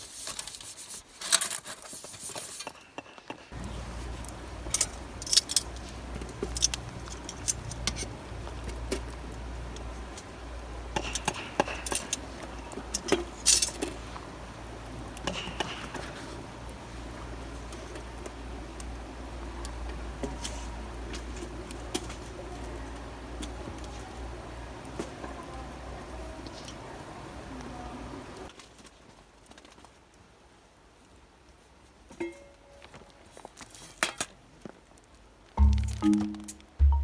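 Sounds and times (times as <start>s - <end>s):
small hard objects clinking: 3.6s - 8.1s.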